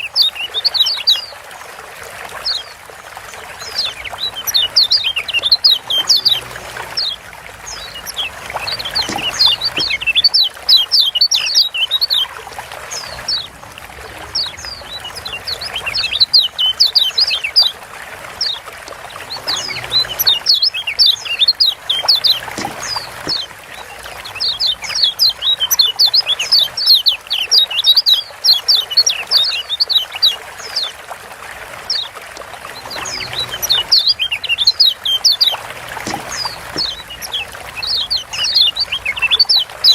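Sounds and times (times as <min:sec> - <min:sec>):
bird chattering calls: 0:00.0 - 0:01.2, 0:03.8 - 0:12.3, 0:19.4 - 0:30.4, 0:33.0 - 0:39.9
steady trickling hiss: 0:00.0 - 0:39.9.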